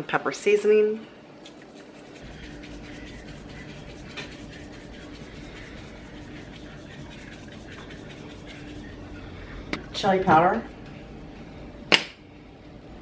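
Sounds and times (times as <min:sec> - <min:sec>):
low steady hum: 0:00.0 - 0:13.0
spice shaker shaking: 0:01.4 - 0:09.1.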